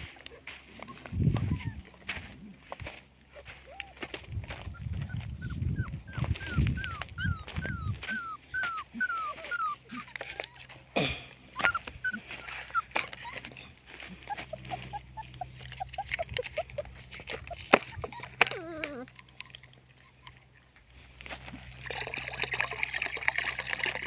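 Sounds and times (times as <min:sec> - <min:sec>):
puppies whimpering: 0:00.0 - 0:20.8.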